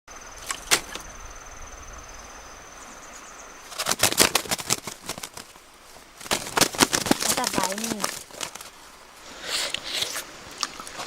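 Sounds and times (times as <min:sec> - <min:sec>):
high-pitched insect trill: 0:00.1 - 0:03.7
crackling and rustling: 0:03.6 - 0:09.0.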